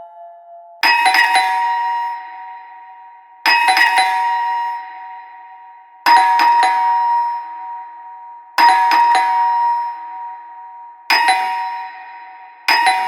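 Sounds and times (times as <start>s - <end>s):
doorbell chime: 0.0s - 2.7s, 8.6s - 10.1s, 12.7s - 13.0s.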